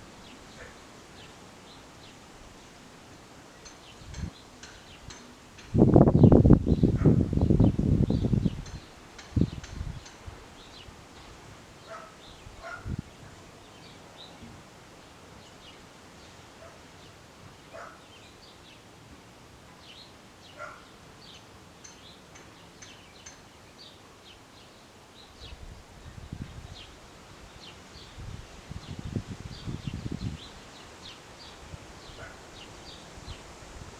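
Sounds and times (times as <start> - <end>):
small birds chirping: 3.4 - 18.9, 19.8 - 33.5
wind rumble on microphone: 4.0 - 4.4, 5.6 - 10.5, 12.4 - 13.4, 25.4 - 30.9.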